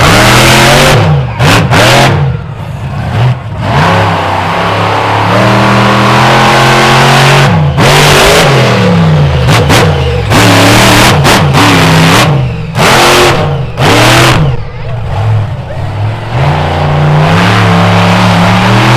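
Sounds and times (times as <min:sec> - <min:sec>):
truck engine revving: 0:00.0 - 0:18.9.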